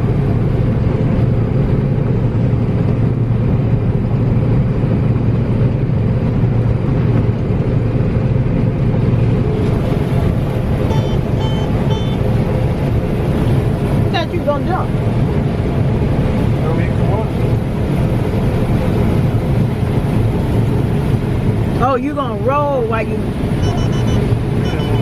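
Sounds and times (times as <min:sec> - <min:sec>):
heavy machine engine humming: 0:00.0 - 0:25.0
short electronic beeps: 0:10.9 - 0:12.3, 0:23.6 - 0:25.0.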